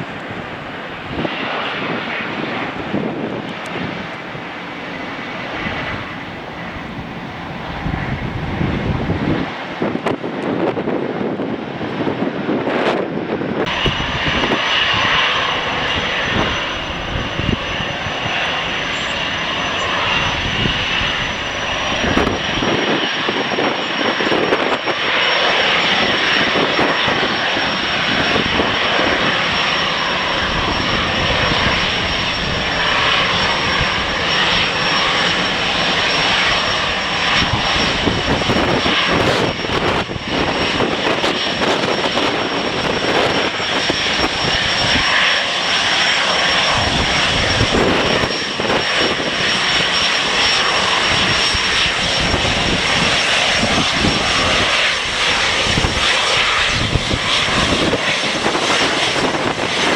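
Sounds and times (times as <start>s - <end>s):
jet engines running: 0.0s - 10.3s, 12.5s - 59.9s
wind buffeting microphone: 0.0s - 59.9s
thin high whine: 13.7s - 22.7s, 26.9s - 39.4s.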